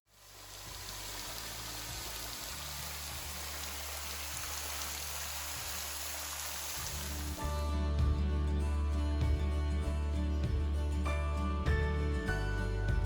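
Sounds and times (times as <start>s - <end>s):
falling splashing water: 0.1s - 7.4s.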